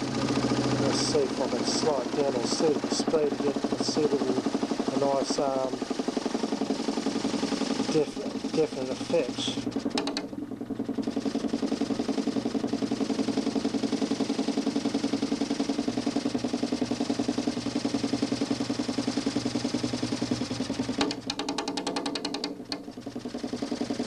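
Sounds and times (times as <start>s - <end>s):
motor spinning disc with pulsing: 0.0s - 24.0s.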